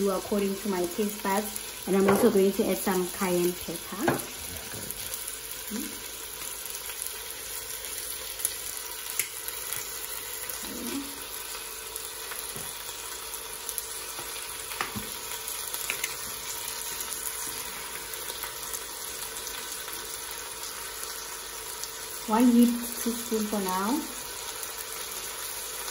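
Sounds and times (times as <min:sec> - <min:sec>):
meat sizzling in oil: 0:00.0 - 0:25.9.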